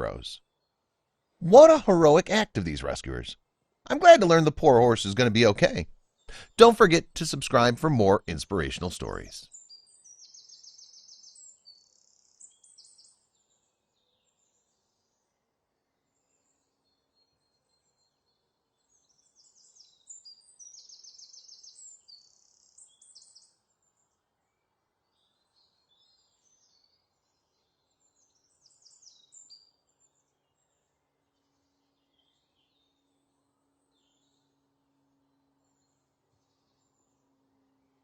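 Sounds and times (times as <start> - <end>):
songbird chirps and trills: 0.0 - 38.0.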